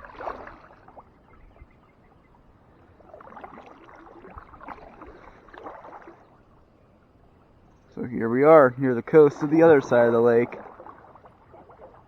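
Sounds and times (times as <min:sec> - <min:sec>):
kayak paddle splashing in water: 0:00.0 - 0:01.2, 0:02.9 - 0:06.5, 0:09.1 - 0:12.0.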